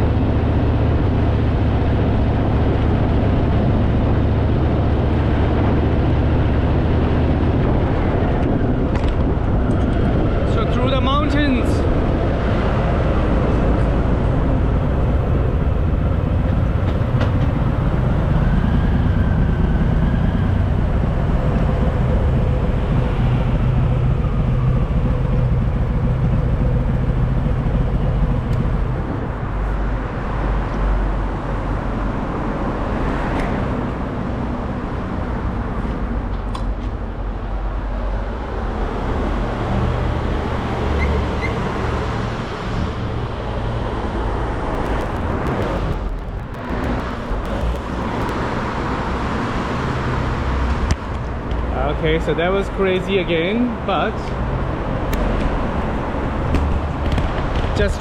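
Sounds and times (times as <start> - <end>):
wind and road noise: 0.0 - 58.0
motorcycle engine running: 13.8 - 30.0, 44.5 - 48.9.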